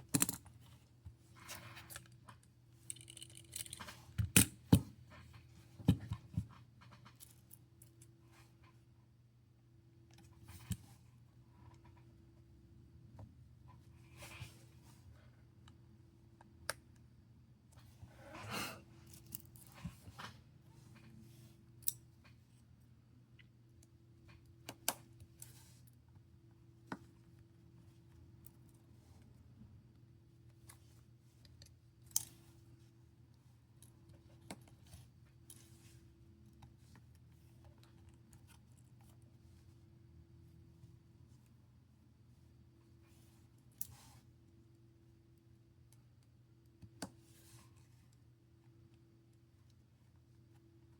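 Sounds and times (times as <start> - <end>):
faint room hum: 0.0 - 50.9
hands clicking phone parts: 2.9 - 4.6.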